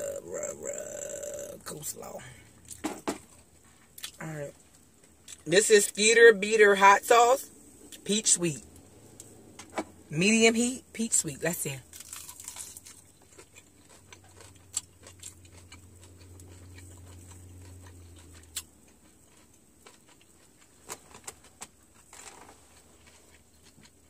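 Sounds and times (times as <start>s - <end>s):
person chewing crunchy chicken: 0.0s - 5.5s, 11.8s - 24.0s.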